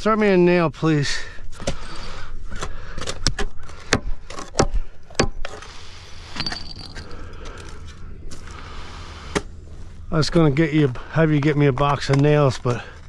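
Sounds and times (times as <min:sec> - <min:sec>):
low steady rumble: 0:06.4 - 0:13.0.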